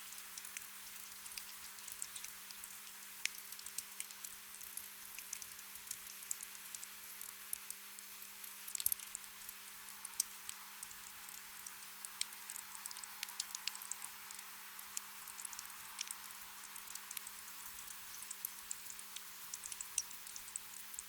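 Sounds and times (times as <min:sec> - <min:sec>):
raindrops pattering: 0:10.0 - 0:21.0.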